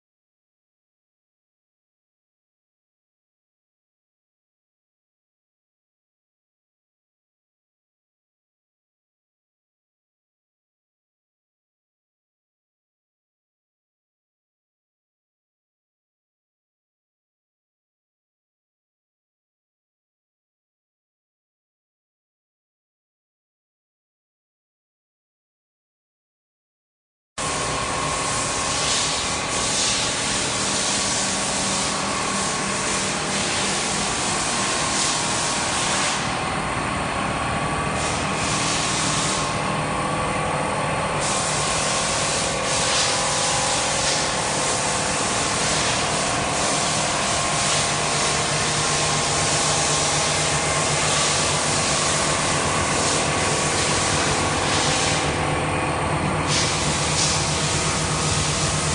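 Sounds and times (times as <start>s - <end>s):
welding machine hiss: 27.4s - 36.4s, 37.9s - 39.7s, 41.2s - 55.5s, 56.3s - 58.9s
machine hum: 27.4s - 58.9s.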